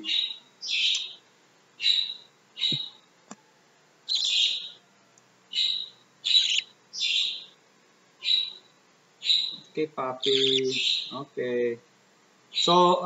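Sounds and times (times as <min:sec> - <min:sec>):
budgerigar chick begging calls: 0:00.1 - 0:01.2, 0:04.1 - 0:04.8, 0:05.6 - 0:07.5, 0:08.2 - 0:08.6, 0:09.2 - 0:09.6, 0:10.2 - 0:11.2.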